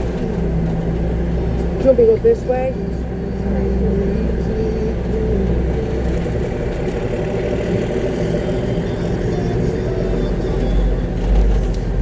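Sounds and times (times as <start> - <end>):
diesel engine low rumble: 0.0 - 12.0.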